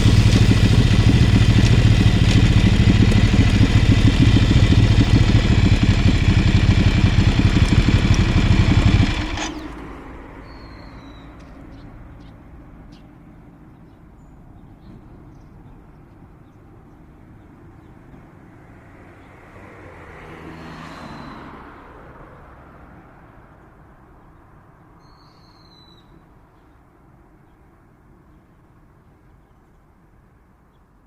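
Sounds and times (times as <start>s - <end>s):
vehicle passing: 0.0s - 10.2s
quiet street ambience: 0.0s - 31.0s.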